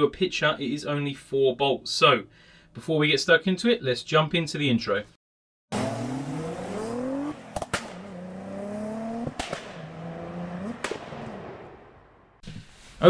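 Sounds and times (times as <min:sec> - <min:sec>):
car engine accelerating: 0:05.7 - 0:12.4
sharp exhaust cracks: 0:05.7 - 0:12.4.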